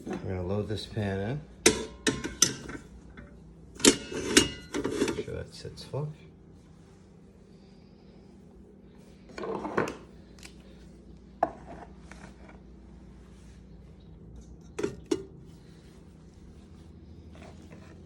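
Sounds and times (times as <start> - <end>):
cookware clattering and knocking: 1.6 - 2.8, 3.8 - 5.2.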